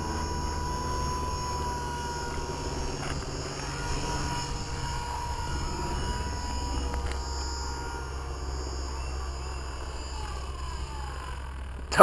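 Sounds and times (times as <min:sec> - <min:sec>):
high motor whine: 0:00.0 - 0:12.0
rotor blades whirring: 0:00.0 - 0:12.0.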